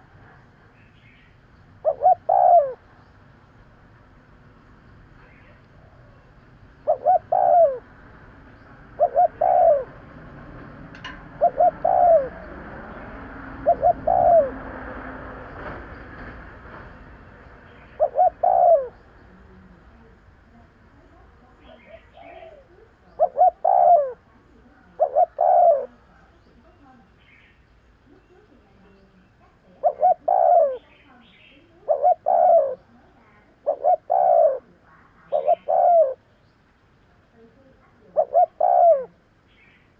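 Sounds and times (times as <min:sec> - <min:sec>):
dove cooing: 0:01.8 - 0:03.0, 0:05.2 - 0:08.1, 0:08.8 - 0:15.3, 0:17.7 - 0:26.8, 0:28.1 - 0:36.3, 0:37.6 - 0:39.3.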